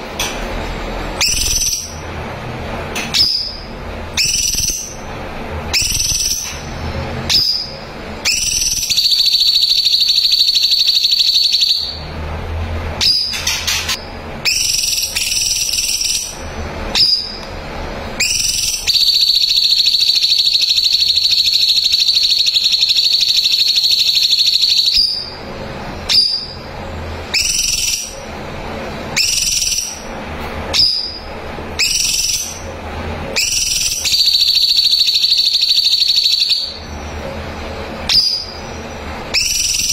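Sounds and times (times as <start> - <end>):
bird whistling and trilling: 1.2 - 2.0, 3.1 - 5.0, 5.7 - 6.6, 7.3 - 12.0, 13.0 - 17.4, 18.2 - 25.4, 26.1 - 26.6, 27.3 - 28.2, 29.2 - 30.1, 30.7 - 31.2, 31.8 - 32.7, 33.4 - 36.8, 38.1 - 39.9.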